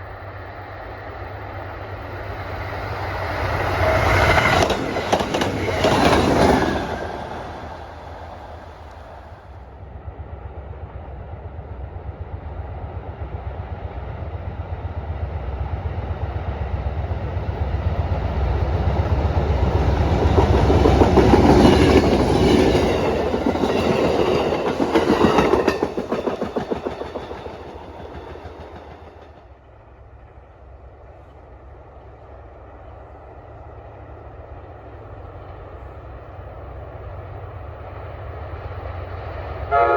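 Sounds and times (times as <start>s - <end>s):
train wheels clicking over rail joints: 3.3s - 9.5s, 19.0s - 30.4s.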